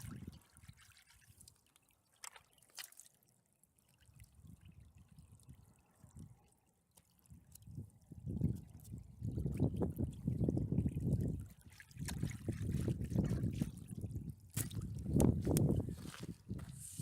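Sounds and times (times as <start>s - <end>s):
stream trickling: 0.0s - 17.0s
wind buffeting microphone: 7.3s - 17.0s.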